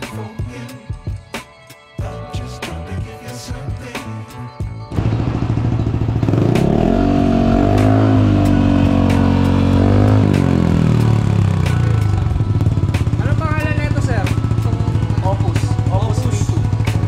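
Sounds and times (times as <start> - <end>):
motorcycle engine revving: 4.9 - 17.0.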